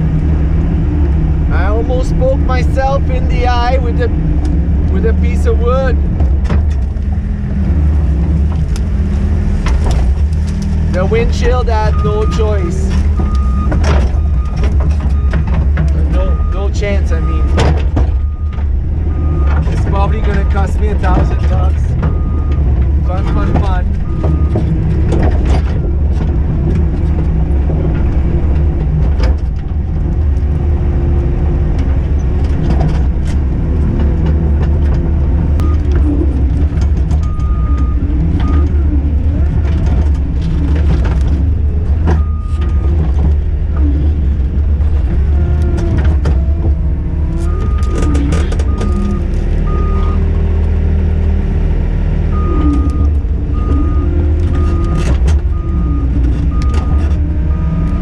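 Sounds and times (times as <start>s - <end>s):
diesel engine running: 0.0s - 58.0s
knocks and clanks: 5.6s - 50.0s, 52.6s - 58.0s
backup alarm beeping: 11.0s - 15.5s, 16.1s - 19.6s, 20.3s - 24.6s, 35.6s - 36.3s, 37.2s - 39.0s, 47.4s - 50.3s, 52.3s - 58.0s.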